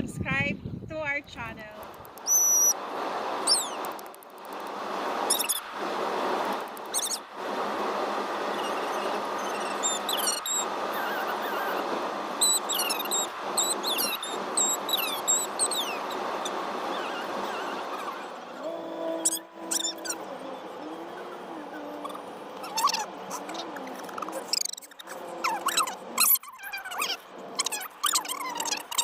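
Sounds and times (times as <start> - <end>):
steady rushing noise: 0.0 - 26.2
small birds chirping: 2.1 - 2.8, 3.4 - 4.1, 5.3 - 5.7, 6.8 - 7.3, 8.5 - 29.0.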